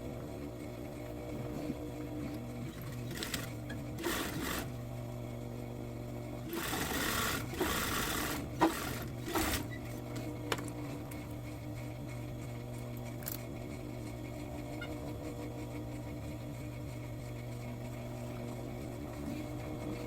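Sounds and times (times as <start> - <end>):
sewing machine running: 2.7 - 4.8, 6.5 - 9.8.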